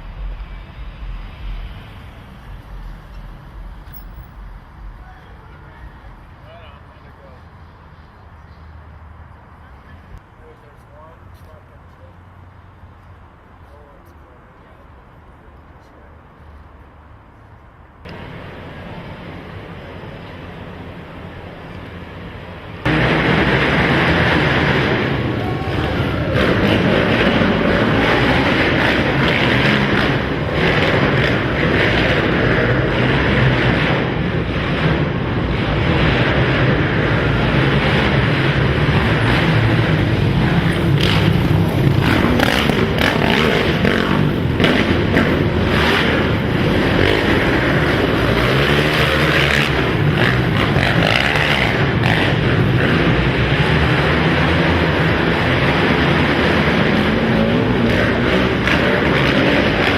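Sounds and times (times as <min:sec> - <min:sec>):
quad engines revving: 0:22.8 - 0:59.9.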